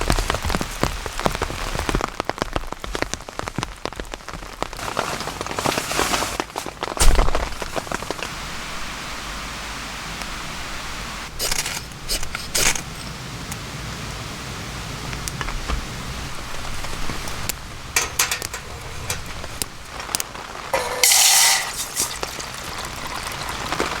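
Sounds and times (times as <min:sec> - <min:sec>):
steady rain falling: 0:00.0 - 0:24.0
clattering noises: 0:15.4 - 0:22.5.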